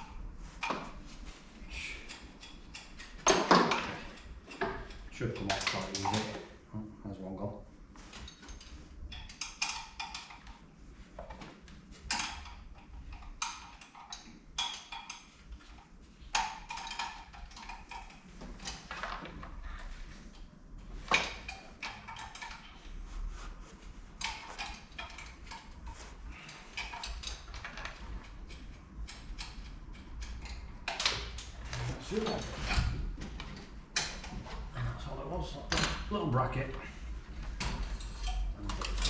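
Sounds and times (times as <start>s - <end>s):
hand tools clicking and knocking: 1.9s - 6.4s, 8.3s - 10.6s, 12.1s - 19.3s, 21.1s - 22.8s, 24.2s - 32.8s.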